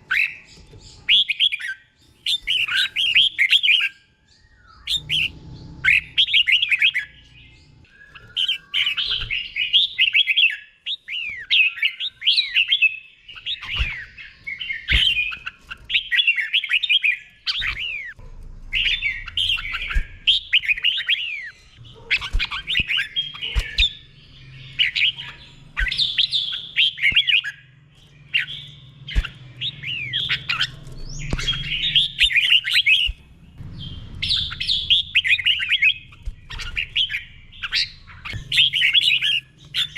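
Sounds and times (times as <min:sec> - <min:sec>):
bird singing warbled whistles: 0:01.1 - 0:07.3, 0:07.9 - 0:18.2, 0:24.7 - 0:27.7, 0:33.8 - 0:39.9.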